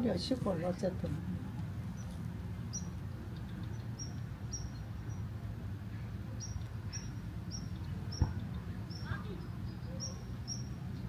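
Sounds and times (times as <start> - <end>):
small bird chirping: 6.4 - 11.0.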